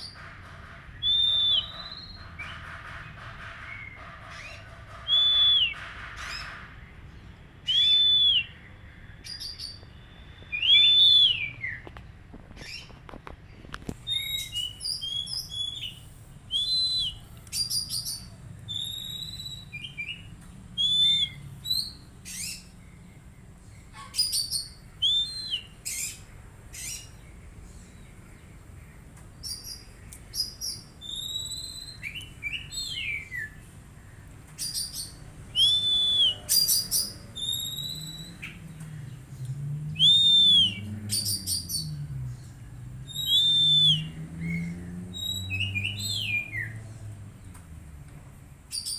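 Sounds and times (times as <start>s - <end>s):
songbird whistling and trilling: 1.0s - 2.6s, 3.8s - 5.8s, 7.6s - 8.6s, 9.2s - 12.0s, 14.0s - 23.0s, 24.1s - 27.2s, 29.4s - 33.6s, 34.6s - 38.8s, 39.9s - 42.1s, 43.0s - 46.8s.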